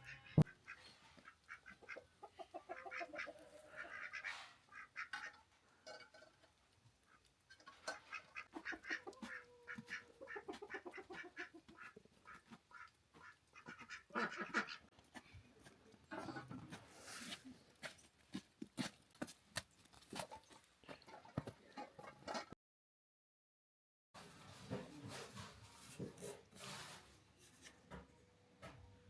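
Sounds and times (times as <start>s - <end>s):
poultry calling: 0.0s - 5.4s, 7.1s - 14.9s.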